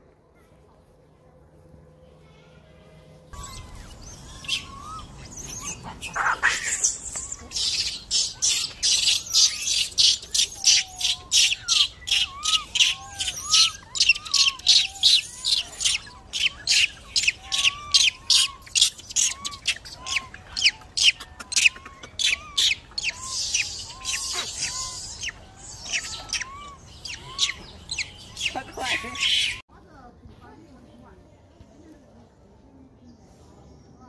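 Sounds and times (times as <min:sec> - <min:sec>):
rapid high bird chirps: 0:03.4 - 0:29.6
whistled bird notes: 0:03.4 - 0:29.6.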